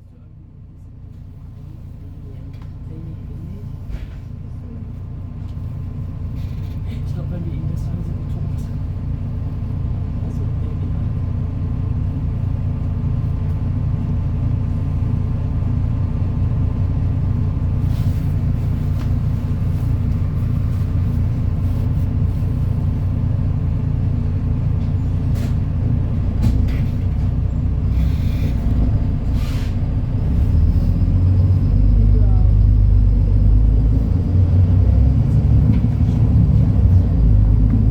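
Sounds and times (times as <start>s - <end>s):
bus diesel engine rumbling: 0.0s - 37.9s
air brake hiss: 29.4s - 29.8s.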